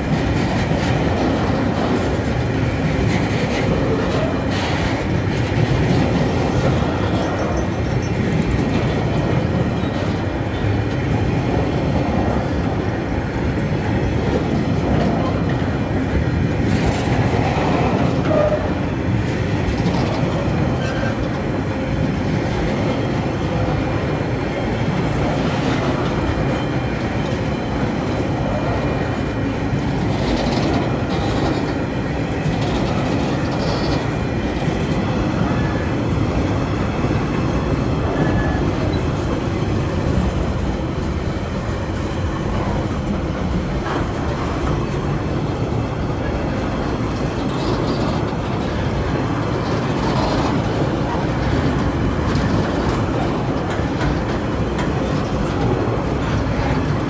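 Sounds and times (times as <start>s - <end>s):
train wheel clacks: 0.0s - 12.8s, 24.6s - 37.5s, 38.1s - 57.0s
train wagons rumbling on rails: 0.0s - 57.0s.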